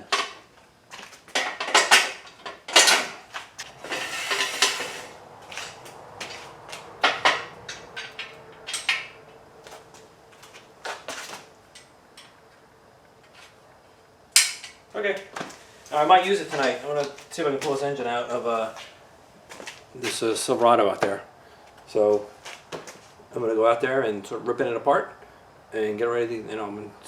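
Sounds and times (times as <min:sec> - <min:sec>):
metal scraping: 0:03.6 - 0:05.8
steel parts clanking: 0:03.8 - 0:05.1.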